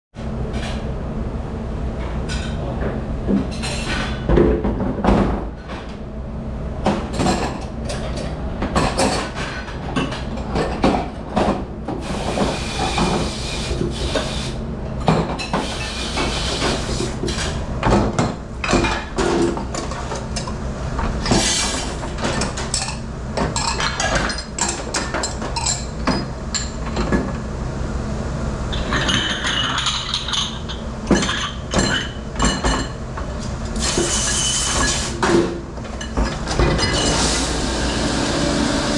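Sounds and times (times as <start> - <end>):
low machine hum: 0.2 - 38.9
dishes and pots clattering: 28.7 - 33.0.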